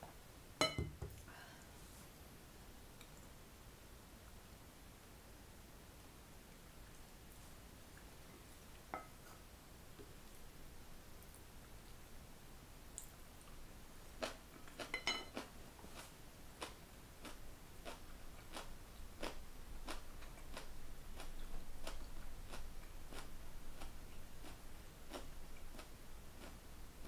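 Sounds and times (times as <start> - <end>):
close-up chewing: 14.2 - 26.6
chopsticks clinking on plate: 14.9 - 15.4.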